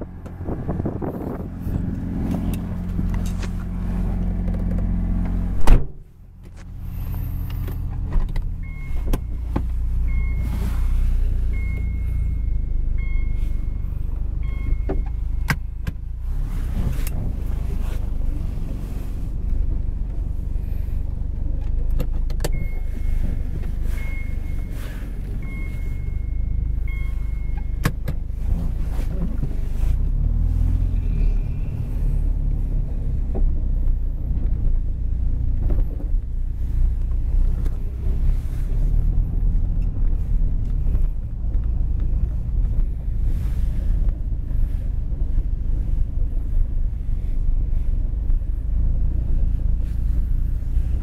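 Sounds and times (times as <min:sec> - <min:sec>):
car engine low rumble: 0:00.0 - 0:51.0
electronic warning beep: 0:11.5 - 0:15.1, 0:25.4 - 0:27.8.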